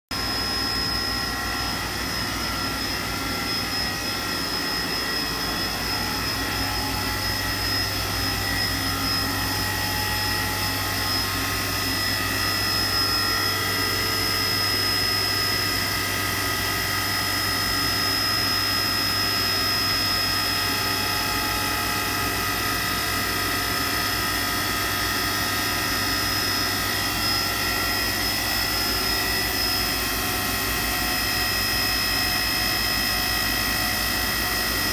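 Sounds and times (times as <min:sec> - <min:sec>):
machining center humming and whining: 0:00.1 - 0:34.9.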